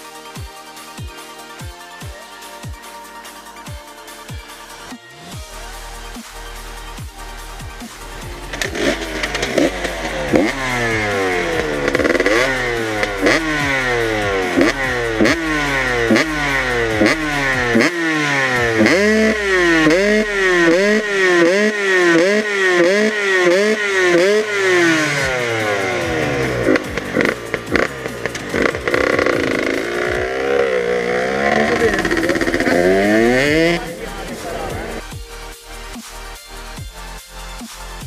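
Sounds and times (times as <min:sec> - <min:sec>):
two-stroke motorcycle engine revving: 0:05.2 - 0:35.2.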